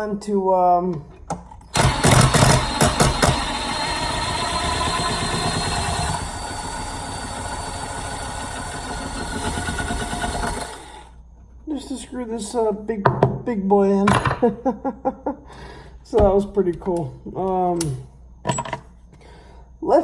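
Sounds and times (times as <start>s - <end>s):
impact driver hammering: 1.7s - 10.8s.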